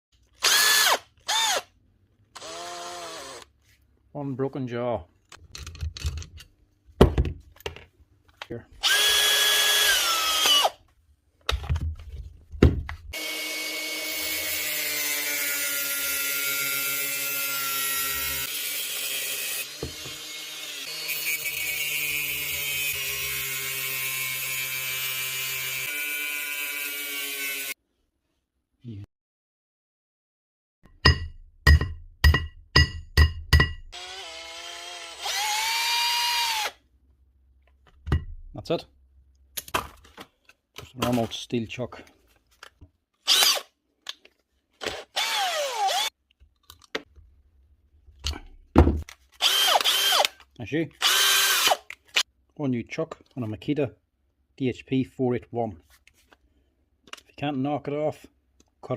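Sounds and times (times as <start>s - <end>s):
cordless drill motor whirring: 0.4s - 1.7s, 2.4s - 3.5s, 8.8s - 10.8s, 34.0s - 36.8s, 43.3s - 43.7s, 44.8s - 46.1s, 49.4s - 50.4s, 51.0s - 52.2s
power tool grinding steel: 13.2s - 27.8s.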